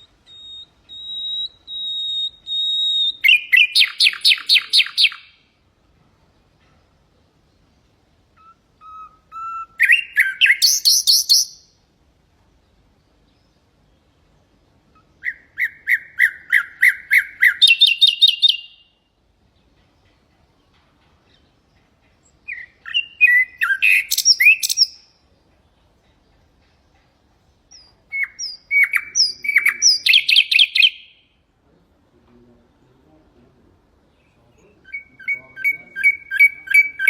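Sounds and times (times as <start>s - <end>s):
nightingale singing: 0.0s - 37.0s.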